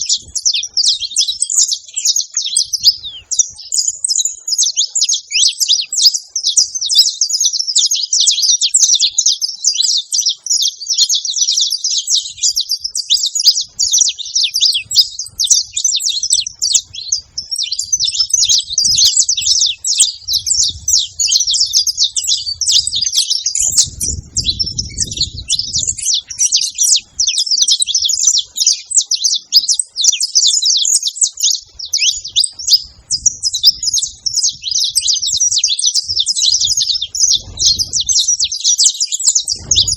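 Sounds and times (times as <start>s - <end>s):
finch chirping song: 0.0s - 39.9s
faint low rumble: 23.6s - 26.0s, 36.1s - 38.4s.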